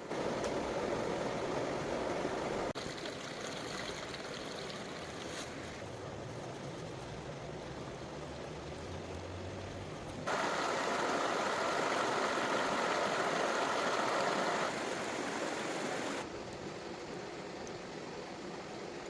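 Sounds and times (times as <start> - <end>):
river water rushing: 8.4 - 16.2.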